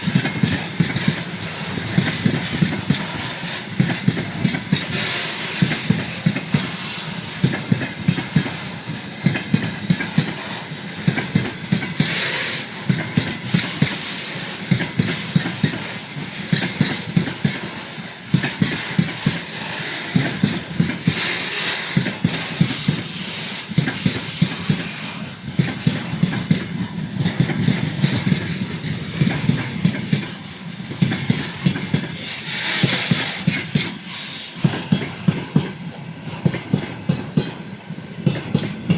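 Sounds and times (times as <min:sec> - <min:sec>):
freight train rumble: 0:00.0 - 0:38.9
train wheels clacking over rail joints: 0:00.0 - 0:38.9.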